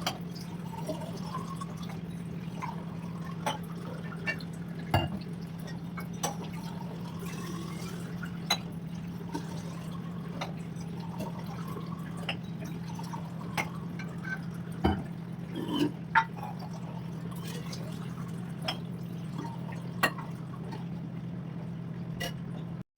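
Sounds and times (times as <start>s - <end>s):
light drips and taps: 3.4s - 6.6s, 10.3s - 11.6s, 12.2s - 12.8s, 13.5s - 15.2s, 18.6s - 19.0s.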